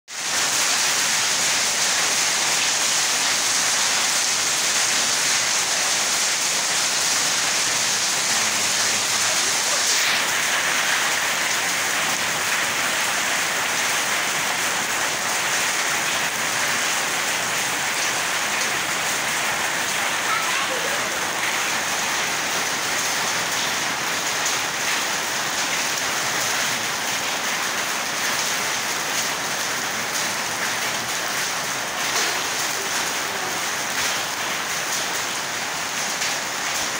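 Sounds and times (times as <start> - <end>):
rain on wet concrete: 0.1 - 36.9.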